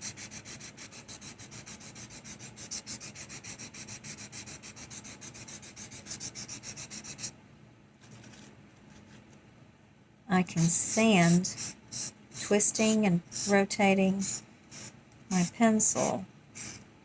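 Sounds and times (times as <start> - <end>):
pencil lead rasping on sandpaper: 0.0 - 7.3, 10.6 - 16.8.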